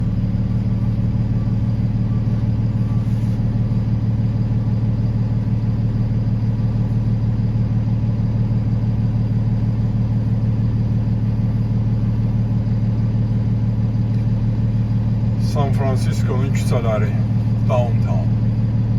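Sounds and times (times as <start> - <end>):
road vehicle drone: 0.0 - 18.9.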